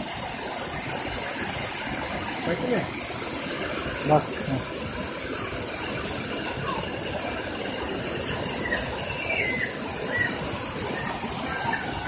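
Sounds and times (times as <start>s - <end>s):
waterfall rushing: 0.0s - 12.0s
faint high chirps: 8.5s - 12.0s.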